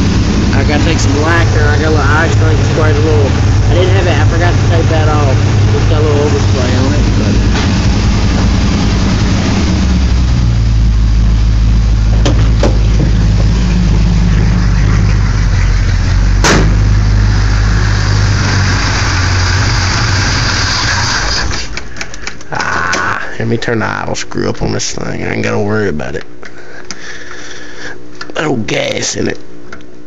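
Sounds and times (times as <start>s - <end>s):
pickup engine idling: 0.0s - 22.5s.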